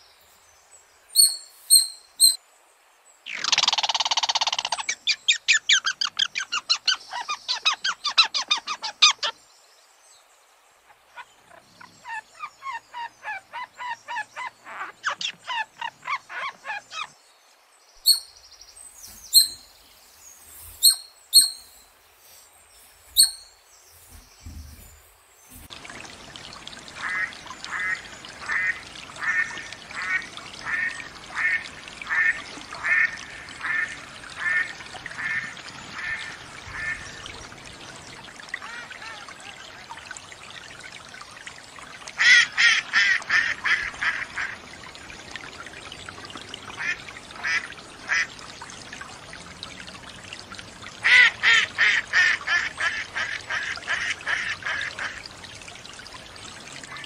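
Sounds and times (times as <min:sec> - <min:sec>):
trickle of water: 0:00.0 - 0:57.0.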